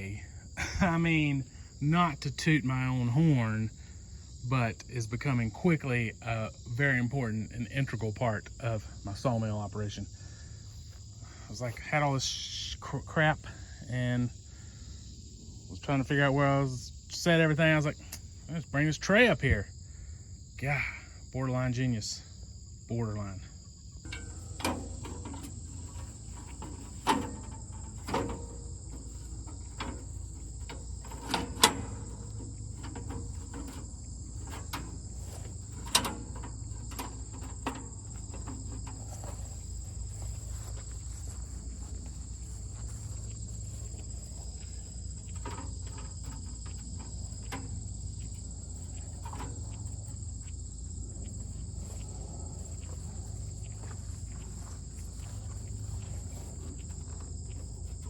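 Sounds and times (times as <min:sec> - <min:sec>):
insects chirring: 0:00.0 - 0:58.0
low steady rumble: 0:21.4 - 0:58.0
clicks and knocks of hand work: 0:24.0 - 0:42.0.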